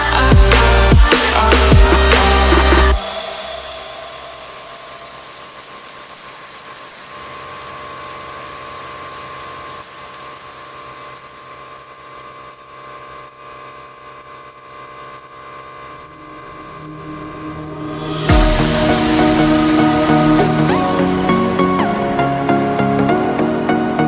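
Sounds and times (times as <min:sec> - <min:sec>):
machine humming: 0:00.0 - 0:07.6, 0:12.7 - 0:24.0
hiss: 0:00.6 - 0:08.8, 0:14.6 - 0:22.1.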